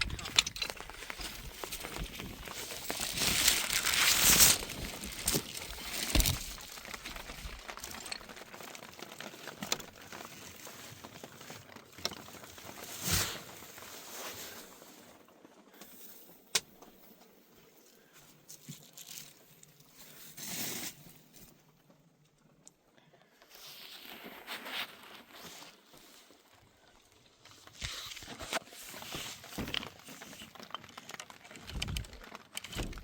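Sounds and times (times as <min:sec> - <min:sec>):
rustling crinkling handling noise: 0:00.0 - 0:33.0
scattered clicks and knocks: 0:30.7 - 0:33.0.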